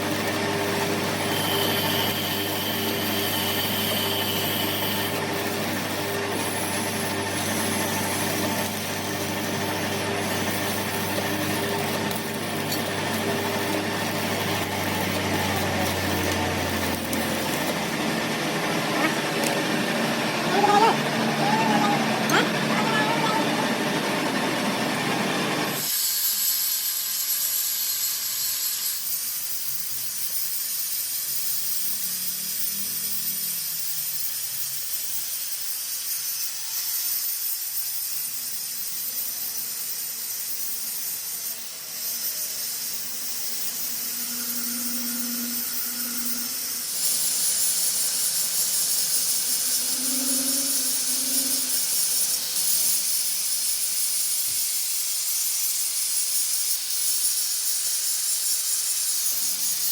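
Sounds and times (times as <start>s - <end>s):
high-pitched hiss: 34.8s - 59.9s.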